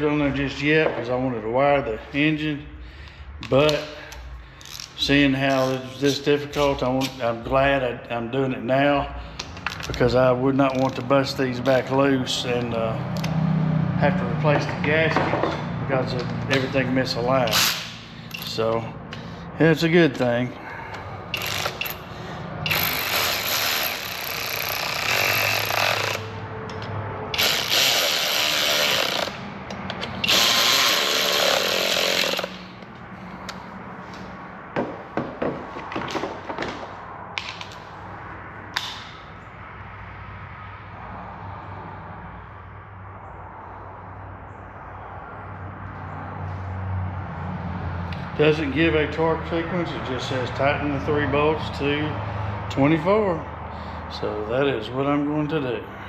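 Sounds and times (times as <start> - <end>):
tools clicking and knocking on metal: 20.9 - 27.8, 28.9 - 30.6
power tool running: 21.4 - 22.1, 22.7 - 26.3, 27.3 - 29.5, 30.2 - 32.8.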